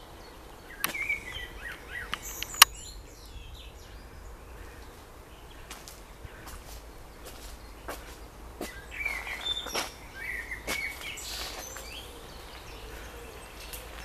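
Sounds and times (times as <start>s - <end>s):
low steady background rumble: 0.0s - 14.0s
songbirds chirping: 0.0s - 14.0s
sharp click: 2.1s - 2.8s.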